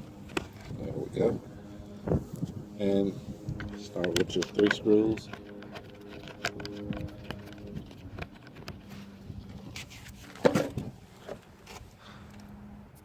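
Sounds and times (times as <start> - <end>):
small clicks and handling noise: 0.2 - 0.8, 3.4 - 13.0.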